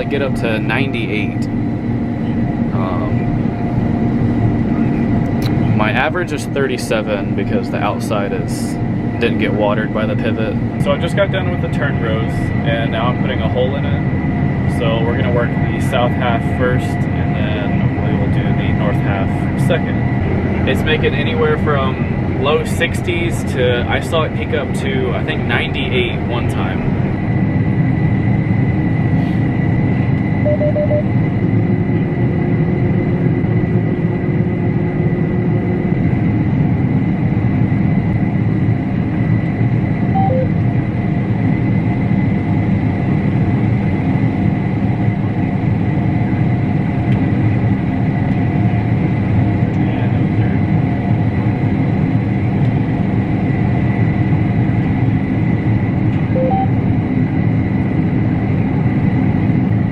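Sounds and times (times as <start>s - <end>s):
combine harvester drone: 0.0s - 59.9s
short beeps: 30.4s - 31.1s, 40.1s - 40.6s, 56.3s - 56.8s.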